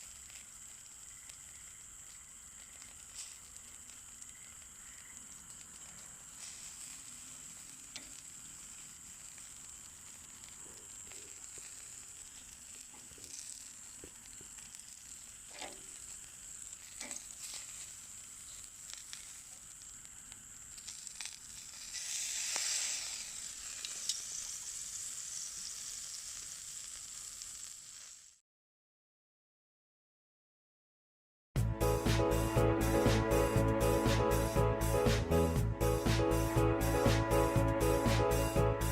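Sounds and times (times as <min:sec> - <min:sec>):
fire pops and crackles: 0:00.0 - 0:28.4
meat sizzling on a grill: 0:00.0 - 0:28.4.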